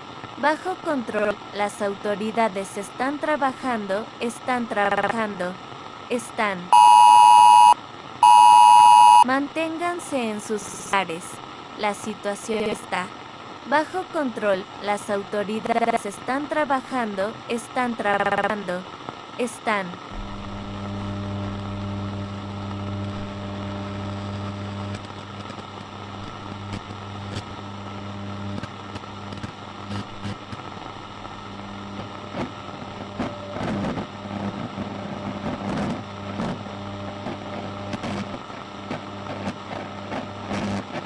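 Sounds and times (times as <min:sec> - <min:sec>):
electrical hum: 0:06.8 - 0:09.2
static crackles: 0:06.8 - 0:09.2.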